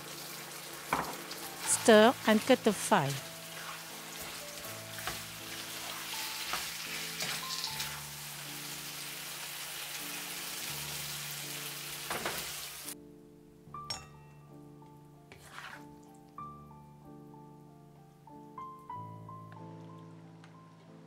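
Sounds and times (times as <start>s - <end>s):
food sizzling in hot oil: 0.0s - 13.0s
spatula scraping a pan: 3.3s - 8.1s, 15.3s - 15.9s.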